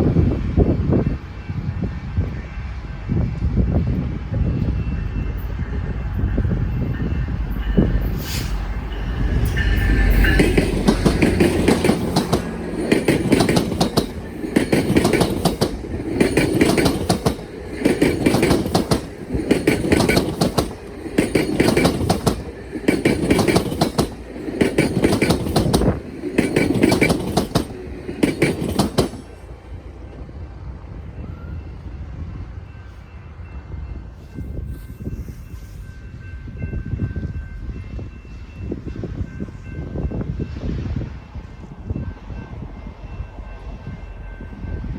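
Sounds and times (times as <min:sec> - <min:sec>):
low train rumble: 0:00.0 - 0:44.9
train wheels clacking over crossing: 0:04.5 - 0:29.5.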